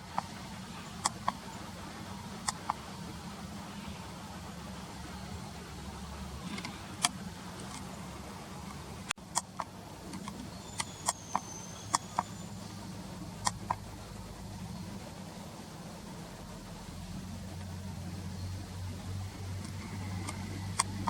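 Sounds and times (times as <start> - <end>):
small birds ticking: 0.0 - 21.0
steady low hum: 0.0 - 21.0
high bird whistle: 10.5 - 12.6.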